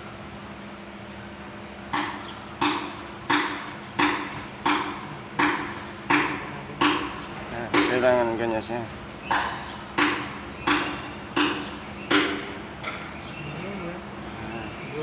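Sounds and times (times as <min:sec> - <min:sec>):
hammer striking metal: 0:02.0 - 0:08.1, 0:09.3 - 0:13.0.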